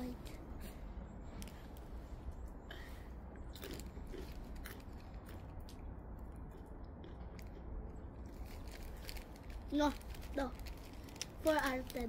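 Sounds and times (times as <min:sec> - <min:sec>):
child chewing crunchy snack: 0:02.7 - 0:12.0.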